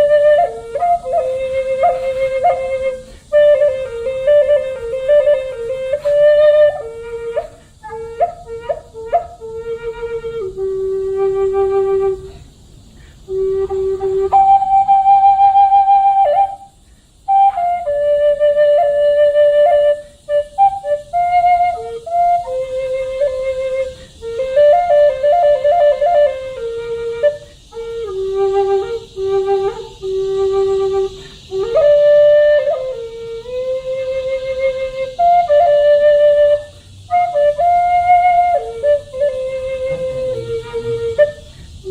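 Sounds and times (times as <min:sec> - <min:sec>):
flute playing slow melody: 0:00.0 - 0:41.9.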